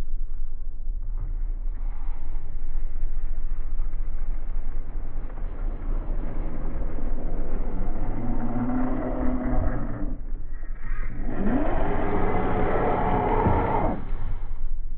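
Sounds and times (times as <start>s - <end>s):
low rumble: 0.0s - 14.9s.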